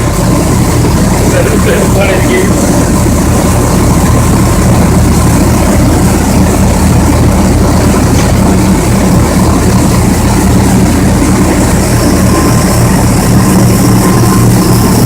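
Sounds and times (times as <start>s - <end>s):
mill machinery droning: 0.0s - 15.0s.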